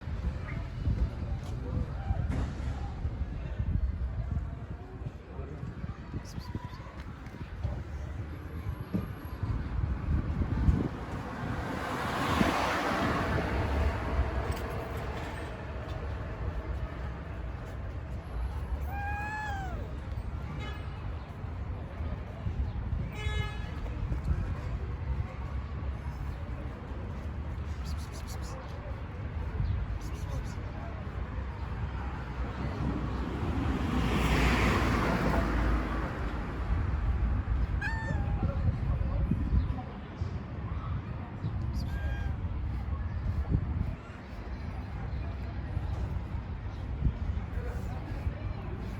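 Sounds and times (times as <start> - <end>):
road vehicle passing by: 8.2 - 23.0, 23.7 - 39.0.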